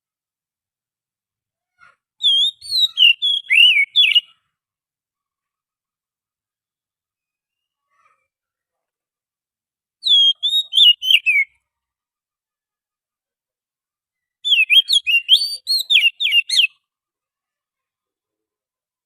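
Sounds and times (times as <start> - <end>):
bird singing whistled notes: 2.2 - 4.4, 7.2 - 7.8, 10.0 - 11.6, 14.2 - 16.8.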